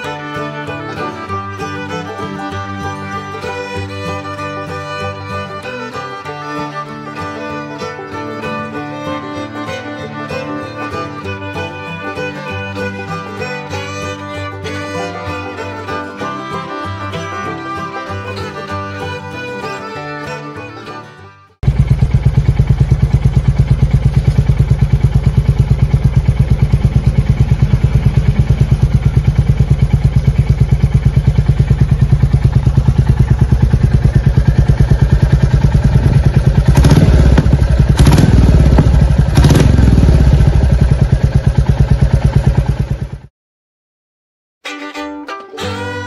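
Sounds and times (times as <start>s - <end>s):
engine throttle blips: 0.0s - 20.7s, 21.6s - 43.3s
motorcycle engine idling: 21.6s - 43.3s.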